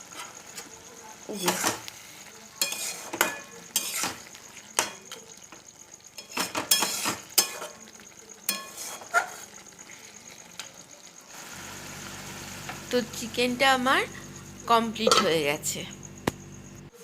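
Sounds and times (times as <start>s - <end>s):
spatula scraping a pan: 0.0s - 5.0s, 6.1s - 7.8s, 8.4s - 10.4s
faint sizzle: 0.0s - 17.0s.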